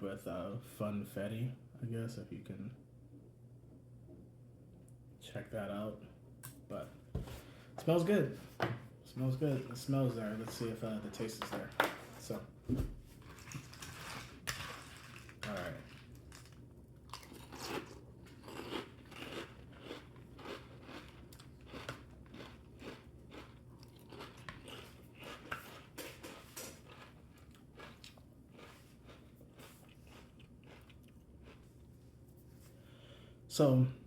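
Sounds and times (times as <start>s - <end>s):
person chewing crunchy cereal: 13.2s - 32.0s.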